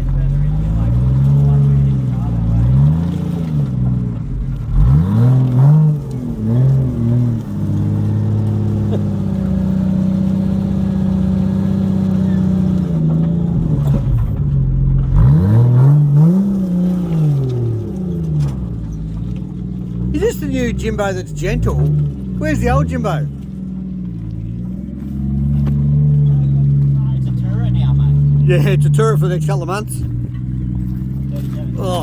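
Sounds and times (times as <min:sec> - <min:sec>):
engine revving: 0:00.0 - 0:32.0.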